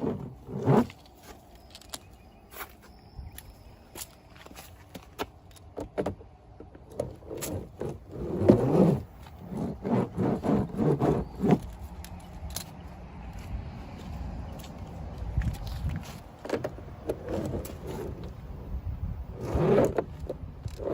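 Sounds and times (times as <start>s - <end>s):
toy trucks scraping through dirt: 0.0s - 2.9s, 6.9s - 12.8s, 15.4s - 20.9s.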